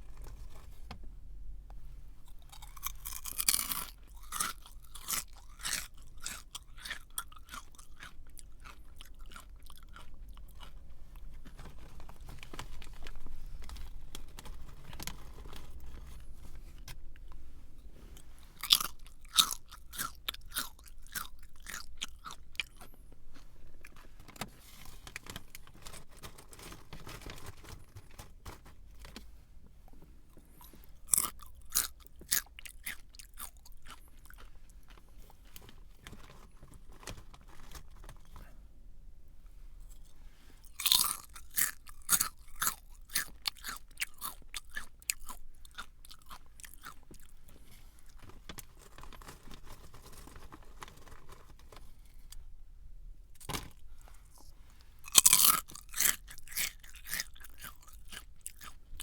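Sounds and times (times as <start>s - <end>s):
crunchy snack chewing: 2.2s - 17.4s, 18.2s - 24.1s, 30.4s - 35.0s, 39.9s - 52.3s, 53.4s - 59.0s.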